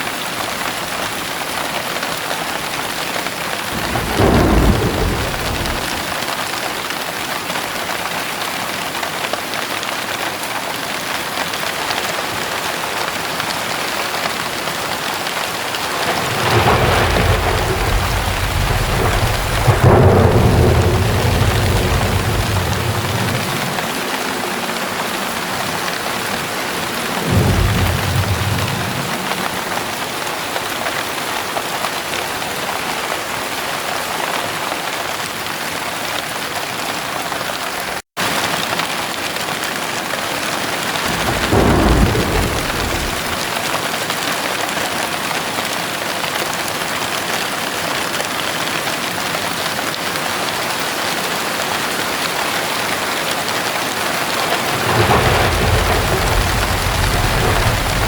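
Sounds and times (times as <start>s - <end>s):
heavy rain: 0.0s - 58.0s
thunder rumbling: 3.7s - 6.4s, 12.5s - 30.6s, 40.6s - 43.9s, 54.2s - 58.0s.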